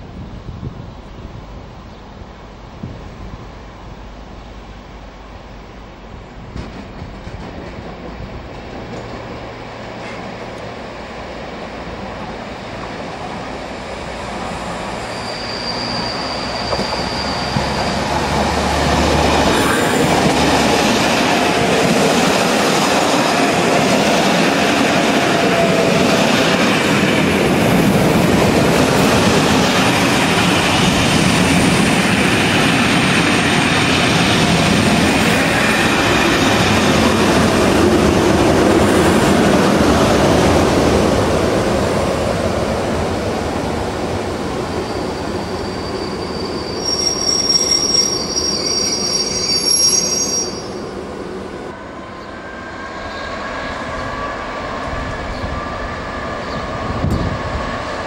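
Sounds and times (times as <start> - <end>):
train wheels rumbling and clattering: 6.0 - 10.8, 15.7 - 46.2, 54.8 - 58.0
high wheel squeal: 14.5 - 18.8, 44.7 - 50.9.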